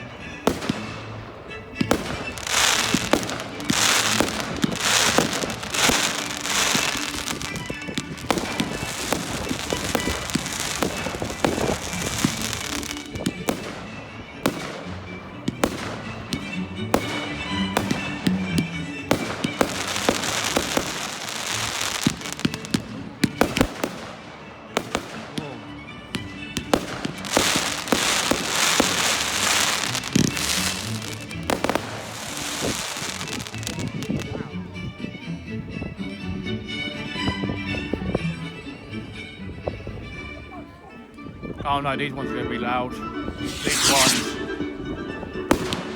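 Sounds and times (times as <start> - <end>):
fireworks crackling and banging: 0.0 - 34.4, 43.4 - 44.8, 45.5 - 45.9.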